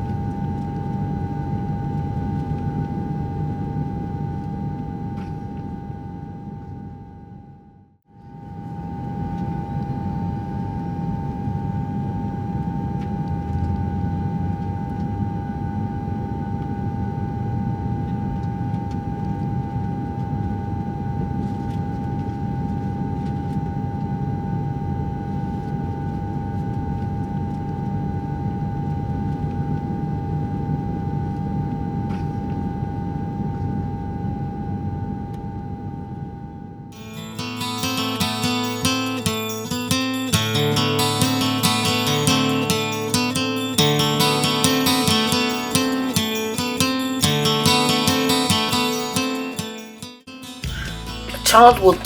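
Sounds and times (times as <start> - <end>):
high whine: 37.0 - 52.0.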